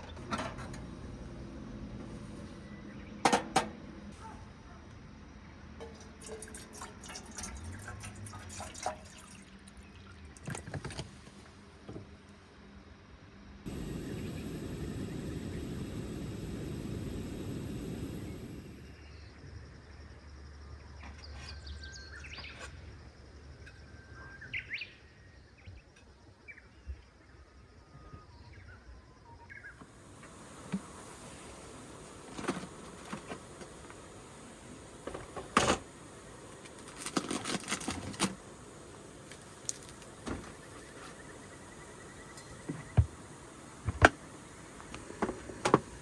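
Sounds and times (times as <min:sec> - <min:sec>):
steady hiss: 0:13.7 - 0:19.1, 0:29.8 - 0:46.0.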